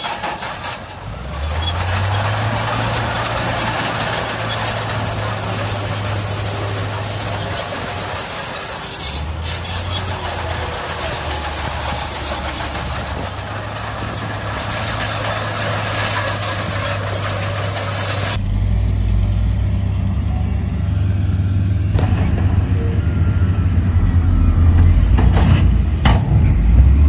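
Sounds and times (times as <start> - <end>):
high-pitched metallic squeals: 0.0 - 18.4
diesel machinery engine under load: 0.0 - 27.0.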